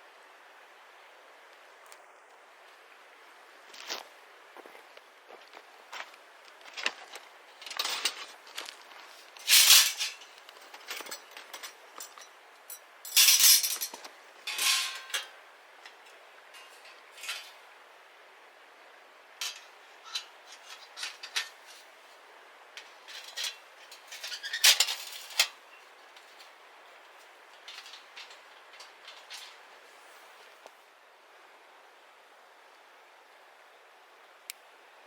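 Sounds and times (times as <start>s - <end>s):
metal cookware clinking: 13.1s - 15.4s, 16.6s - 17.6s, 19.4s - 21.8s, 27.6s - 29.6s.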